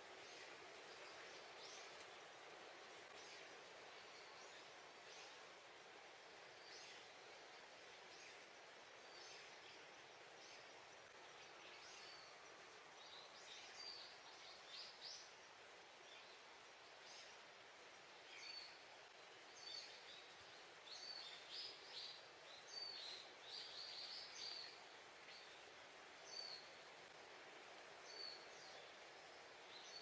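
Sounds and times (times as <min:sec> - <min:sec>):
faint background hiss: 0:00.0 - 0:30.0
small birds chirping faintly: 0:00.0 - 0:30.0.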